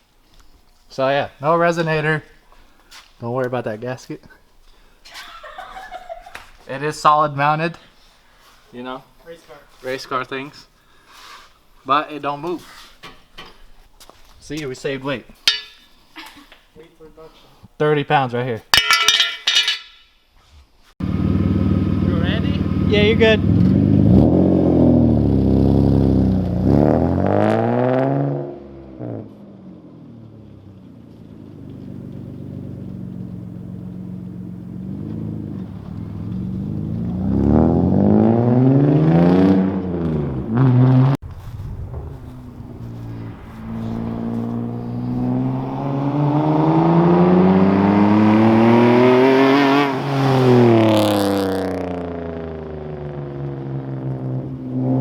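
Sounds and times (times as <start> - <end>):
car engine revving: 21.0 - 29.4, 31.2 - 55.0
car engine idling: 30.8 - 37.1, 41.2 - 46.1.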